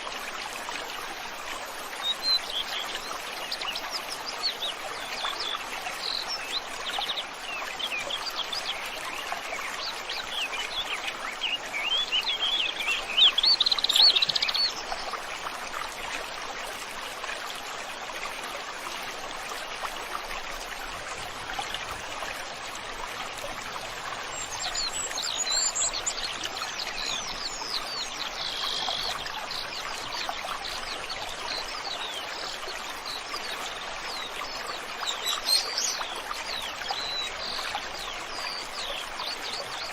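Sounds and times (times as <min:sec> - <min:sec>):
stream water flowing: 0:00.0 - 0:39.9
small birds chirping: 0:24.1 - 0:32.2.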